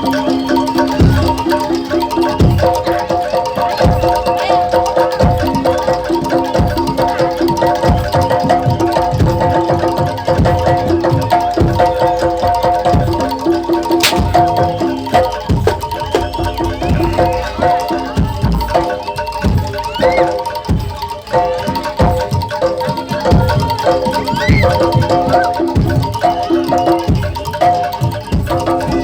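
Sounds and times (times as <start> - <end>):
gamelan metallophones: 0.0 - 29.0
deep drum beats: 14.0 - 14.9.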